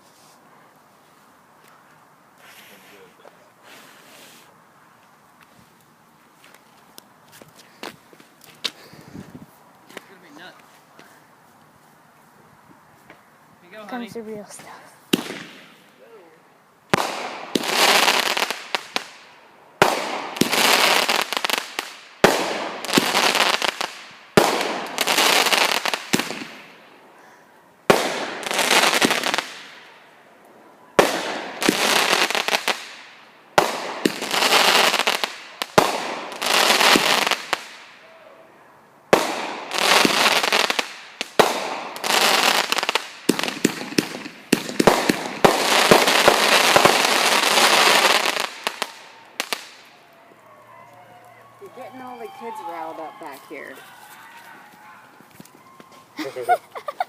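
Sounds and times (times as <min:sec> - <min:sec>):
fireworks bangs and crackling: 0:13.1 - 0:15.9, 0:16.9 - 0:27.0, 0:27.9 - 0:30.0, 0:30.9 - 0:38.0, 0:39.1 - 0:50.0.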